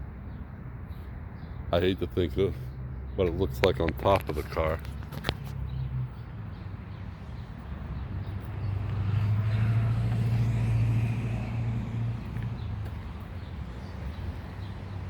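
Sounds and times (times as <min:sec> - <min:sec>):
motor vehicle passing by: 0:06.8 - 0:15.0.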